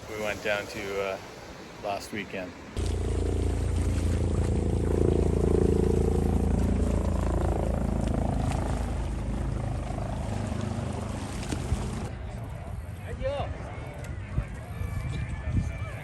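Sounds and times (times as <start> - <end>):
aircraft engine drone: 2.8 - 12.2.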